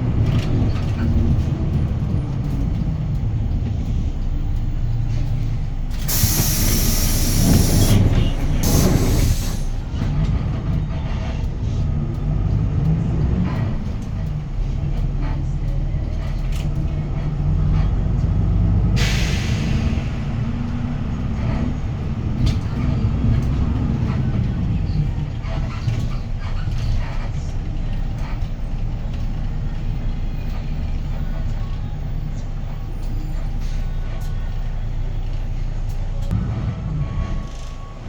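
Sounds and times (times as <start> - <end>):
bus diesel engine pulling: 0.0 - 38.0
short sharp air hiss: 6.0 - 9.7.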